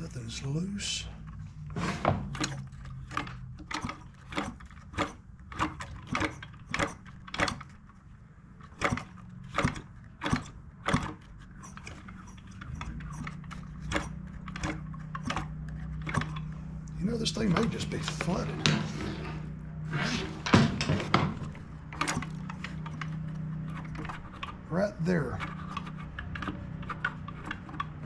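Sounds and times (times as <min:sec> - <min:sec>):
sharp mechanical clicks and knocks: 0:01.1 - 0:28.0.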